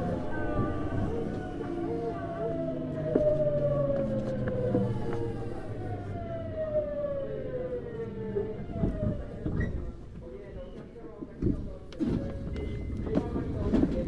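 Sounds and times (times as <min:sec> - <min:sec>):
electric train motors whining: 0:00.0 - 0:09.4
stepped hums: 0:00.0 - 0:14.0.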